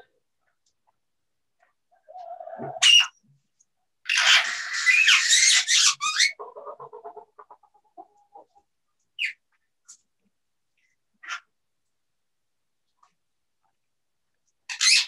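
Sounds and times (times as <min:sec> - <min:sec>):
parrot screeching: 0:02.6 - 0:03.2, 0:04.0 - 0:06.4, 0:14.7 - 0:15.0
parrot squawks: 0:02.6 - 0:03.2, 0:04.0 - 0:06.5, 0:14.7 - 0:15.0
parrot chattering: 0:04.0 - 0:07.6.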